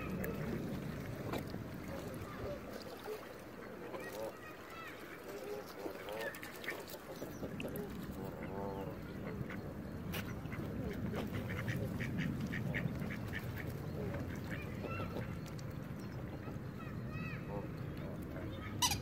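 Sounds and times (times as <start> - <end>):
steady low rumble: 0.0 - 2.7, 7.4 - 16.6
ducks quacking: 0.0 - 19.0
geese honking: 7.8 - 15.4.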